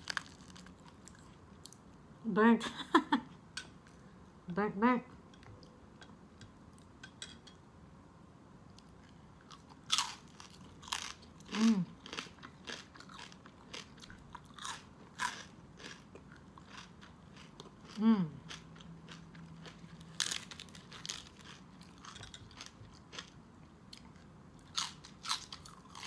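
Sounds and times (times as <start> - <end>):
crackly crunching bites: 0.0 - 1.8, 9.6 - 23.4, 24.6 - 26.0
person humming: 18.0 - 18.4.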